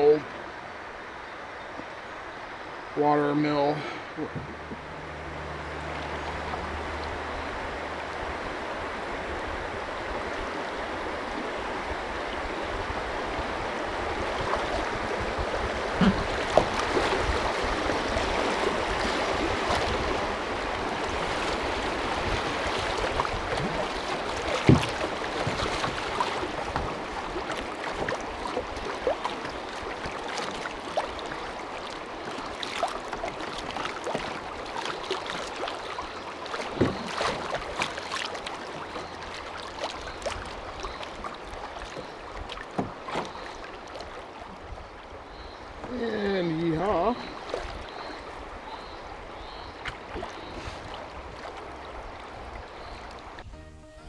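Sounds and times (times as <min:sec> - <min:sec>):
river water rushing: 0:00.0 - 0:53.5
sharp knocks on canoe: 0:22.8 - 0:30.7, 0:36.6 - 0:38.3, 0:41.9 - 0:43.6.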